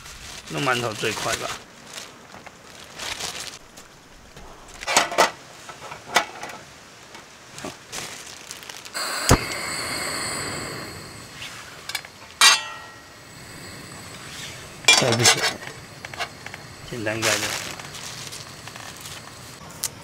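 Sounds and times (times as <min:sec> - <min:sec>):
steady hiss: 0:00.0 - 0:20.0
loud metallic clank: 0:11.9 - 0:13.2
metal utensils clinking: 0:12.0 - 0:13.1, 0:14.8 - 0:17.8.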